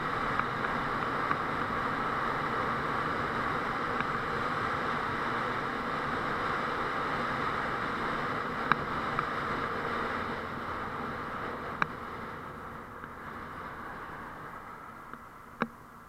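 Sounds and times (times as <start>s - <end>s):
motorcycle engine running: 0.0s - 15.9s.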